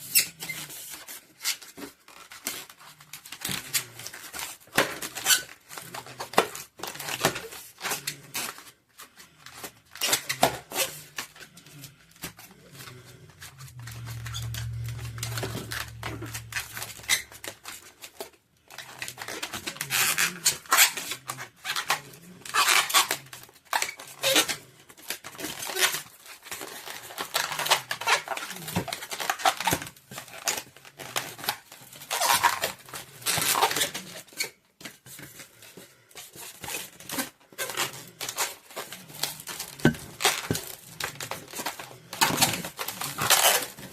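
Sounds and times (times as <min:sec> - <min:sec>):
rubbery balloon squeaks: 0:00.0 - 0:08.7, 0:09.3 - 0:35.7, 0:36.3 - 0:43.9
balloon rubbing: 0:10.0 - 0:18.0
low steady hum: 0:11.4 - 0:18.0.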